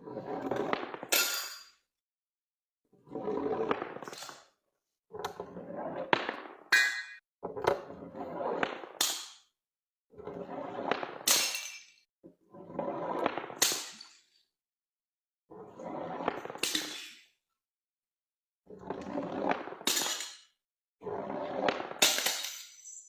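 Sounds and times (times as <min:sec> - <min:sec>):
glass bottles breaking: 0:00.9 - 0:01.7, 0:11.2 - 0:12.0, 0:19.8 - 0:20.4, 0:22.0 - 0:23.0
ringing of glass: 0:06.8 - 0:07.2.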